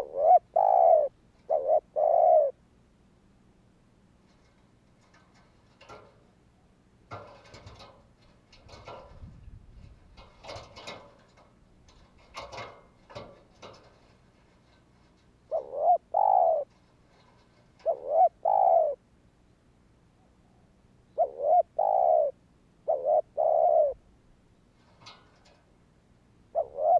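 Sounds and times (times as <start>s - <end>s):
dove cooing: 0.0s - 2.6s, 15.5s - 19.0s, 20.2s - 24.1s, 26.5s - 26.9s.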